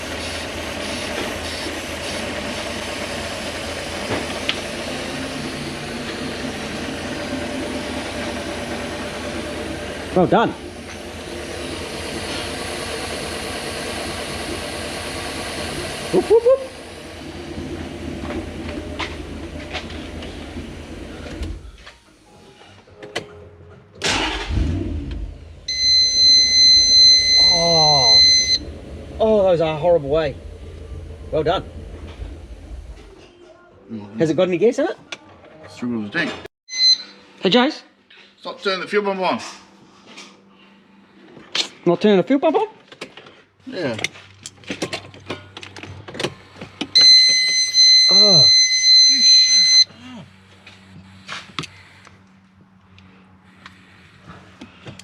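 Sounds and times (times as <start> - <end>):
car engine idling: 0.0 - 21.9, 24.0 - 33.2
engine starter cranking: 24.0 - 33.2.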